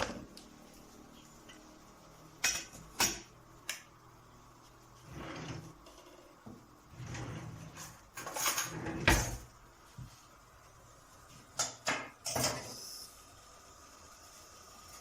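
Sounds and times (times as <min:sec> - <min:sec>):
kitchen knocks and clatters: 0:02.4 - 0:03.4, 0:07.7 - 0:09.5, 0:11.5 - 0:12.8.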